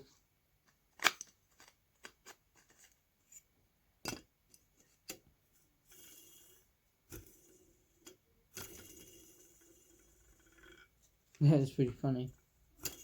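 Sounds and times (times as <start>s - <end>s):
faint clicks and taps of parts: 0.6s - 5.4s.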